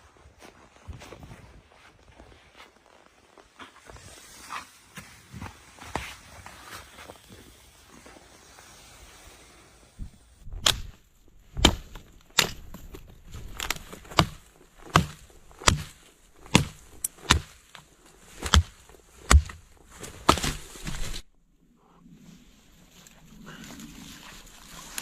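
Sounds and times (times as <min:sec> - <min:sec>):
axe chopping wood: 0:10.4 - 0:21.2.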